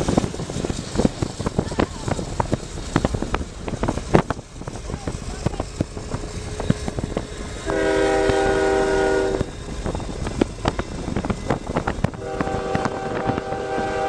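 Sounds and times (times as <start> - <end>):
train rumble and clicking: 0.0 - 14.0
locomotive horn blast: 6.5 - 9.8, 12.1 - 14.0.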